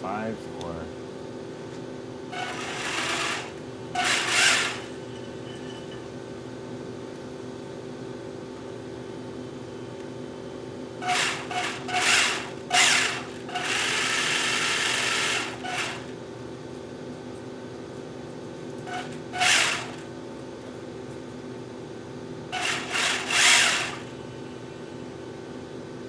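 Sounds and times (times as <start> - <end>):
electric hand tool whirring: 2.3 - 5.9, 11.0 - 16.2, 18.9 - 20.1, 22.5 - 24.4.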